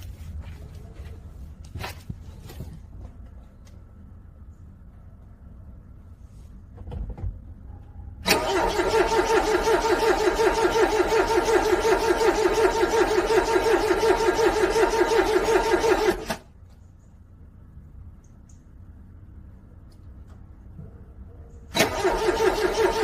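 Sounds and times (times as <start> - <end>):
car engine cranking: 8.2 - 16.5, 21.7 - 23.0.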